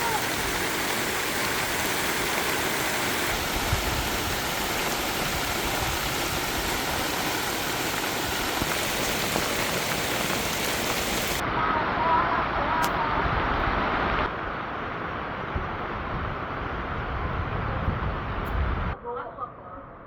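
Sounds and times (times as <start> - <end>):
water rushing over rocks: 0.0 - 15.4.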